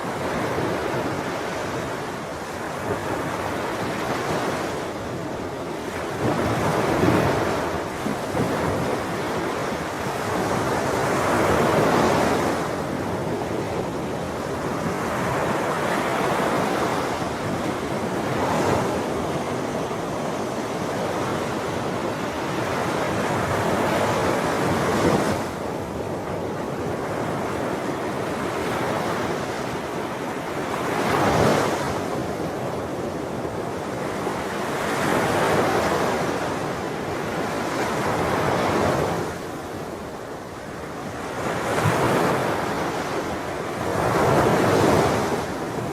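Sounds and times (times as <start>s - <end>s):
sea waves breaking on shore: 0.0s - 45.9s.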